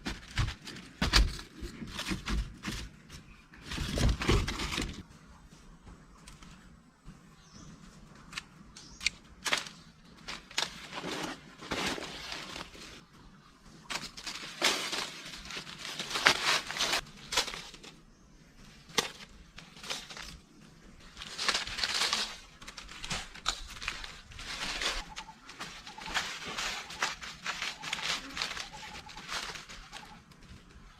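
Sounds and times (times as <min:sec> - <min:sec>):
plant material crunching and snapping: 0:13.9 - 0:18.0, 0:21.0 - 0:30.9.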